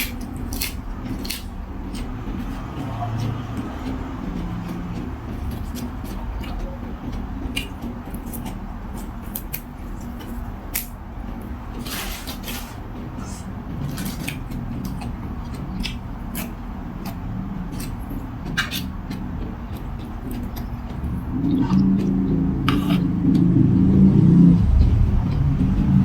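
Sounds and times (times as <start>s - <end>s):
chewing: 0.0s - 11.0s, 11.8s - 23.5s
low background hum: 0.0s - 26.0s
slurping: 20.4s - 23.4s.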